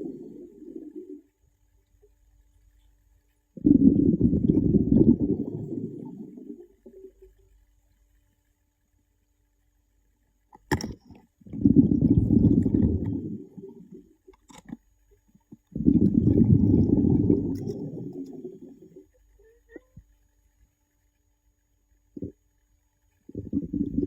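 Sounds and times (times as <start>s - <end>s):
underwater bubbles gurgling: 0.0s - 1.4s, 3.6s - 7.6s, 10.7s - 20.2s, 22.1s - 22.4s, 23.1s - 24.0s.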